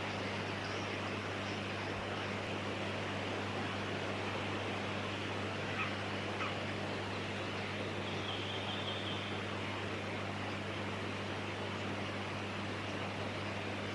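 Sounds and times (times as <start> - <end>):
constant hiss: 0.0 - 13.9
faint bird calls: 5.1 - 9.5.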